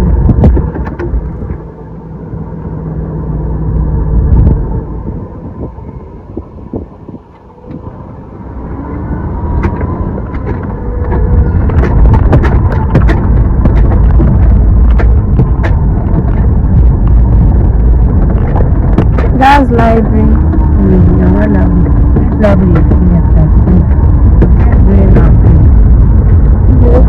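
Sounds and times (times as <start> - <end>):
short rattles and knocks: 0.0 - 1.7, 9.6 - 26.5
car engine and road rumble: 0.0 - 27.0.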